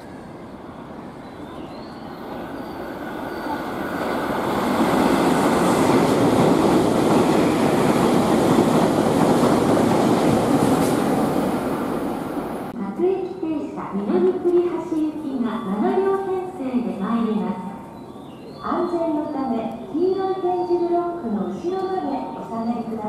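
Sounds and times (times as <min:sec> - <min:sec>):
train wheels rumbling on rails: 0:01.5 - 0:12.8.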